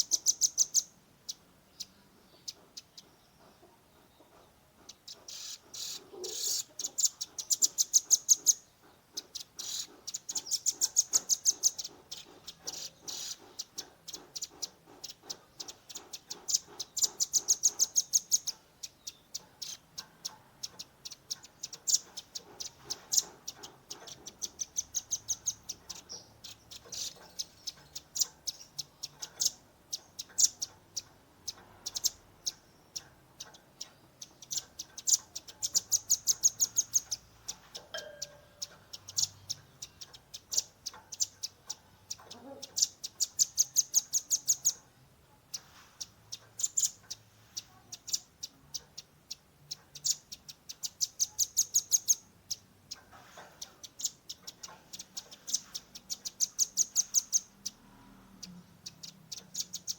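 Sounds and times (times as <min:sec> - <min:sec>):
bird sharp high chip notes: 0:37.8 - 0:39.4.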